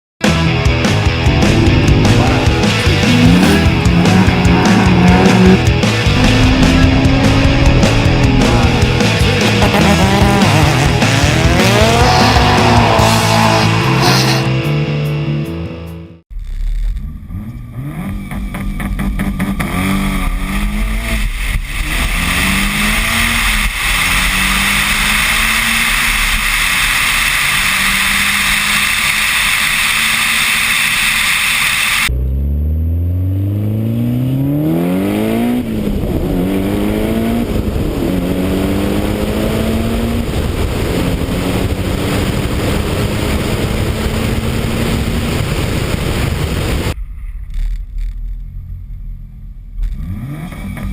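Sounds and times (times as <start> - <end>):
car engine accelerating through gears: 0.4 - 15.6, 17.1 - 45.6, 49.7 - 50.9
wind rush on microphone: 35.7 - 47.0.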